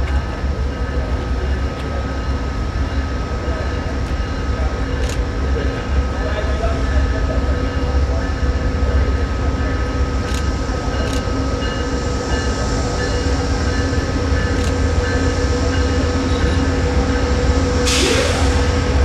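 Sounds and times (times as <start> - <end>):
train rumbling: 0.0 - 19.0
short burst of hiss: 17.9 - 18.7.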